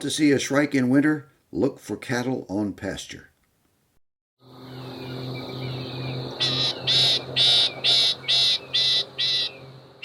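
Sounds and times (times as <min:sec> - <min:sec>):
low hum: 0:04.4 - 0:10.0
shrike harsh rasping calls: 0:04.6 - 0:09.8.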